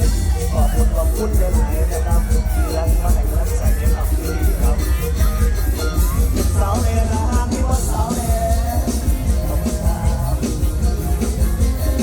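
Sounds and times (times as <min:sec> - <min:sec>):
live band with bass and drums: 0:00.0 - 0:12.0
person singing: 0:00.0 - 0:12.0.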